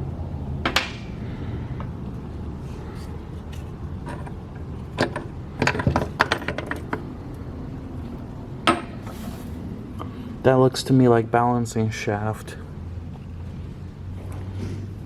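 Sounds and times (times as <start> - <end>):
low steady hum: 0.0 - 15.0
metal engine parts clinking: 3.0 - 7.1.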